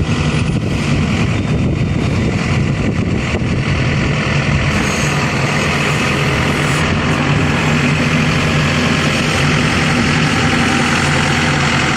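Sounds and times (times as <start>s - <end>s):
diesel engine droning: 0.0s - 11.9s.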